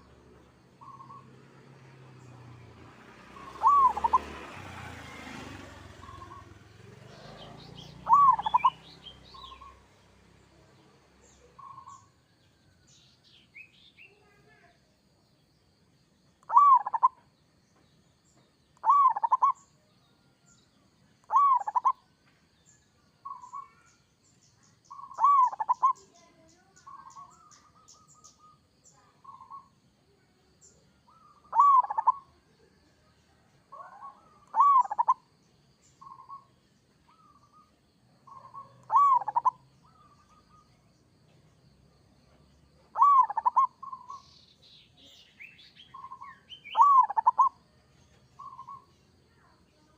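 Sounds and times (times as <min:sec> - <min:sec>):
small bird chirping: 0:00.0 - 0:49.9
dove cooing: 0:03.4 - 0:04.3, 0:07.2 - 0:08.8, 0:16.5 - 0:17.2, 0:18.8 - 0:19.6, 0:21.3 - 0:22.0, 0:24.9 - 0:26.0, 0:31.1 - 0:32.4, 0:33.7 - 0:35.2, 0:38.3 - 0:40.6, 0:42.9 - 0:44.2, 0:46.0 - 0:47.6.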